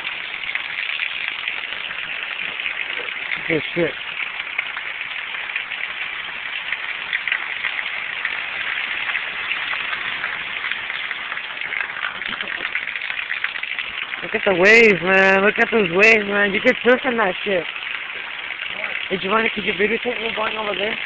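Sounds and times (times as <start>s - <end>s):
heavy rain: 0.0s - 21.0s
fast-running river: 8.6s - 21.0s.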